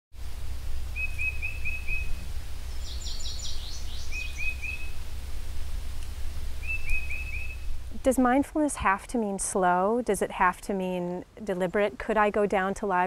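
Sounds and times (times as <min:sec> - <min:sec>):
steady low rumble: 0:00.2 - 0:11.1
birds calling: 0:00.3 - 0:08.4
downward-sweeping bird notes: 0:00.4 - 0:08.2.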